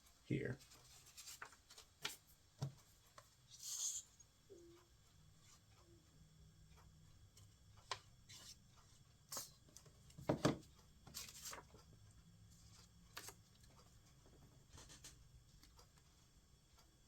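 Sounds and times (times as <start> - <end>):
paper rustling and tapping: 0.6 - 3.3, 9.3 - 11.8, 12.6 - 16.0.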